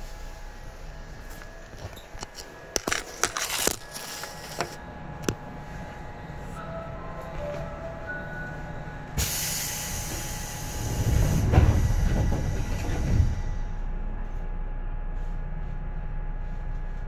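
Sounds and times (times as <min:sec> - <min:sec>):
train heavy low rumble: 0:00.0 - 0:17.0
air hissing: 0:09.2 - 0:13.1.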